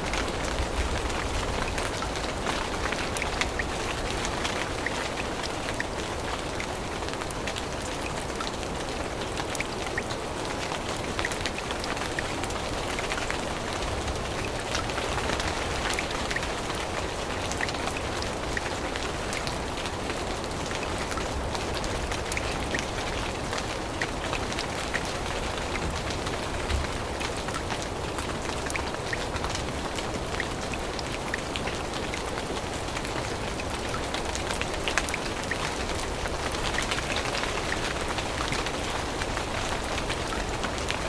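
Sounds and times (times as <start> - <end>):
raindrops ticking on leaves: 0.0 - 41.0
steady rain hiss: 0.0 - 41.0.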